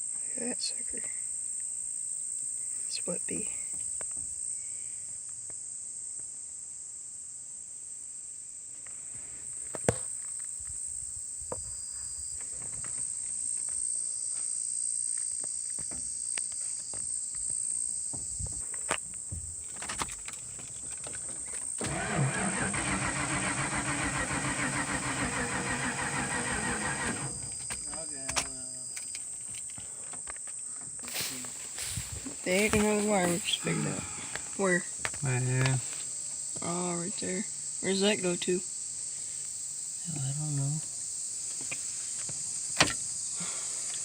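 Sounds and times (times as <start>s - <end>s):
crickets chirring: 0.0s - 44.0s
starter motor cranking engine: 21.8s - 27.9s.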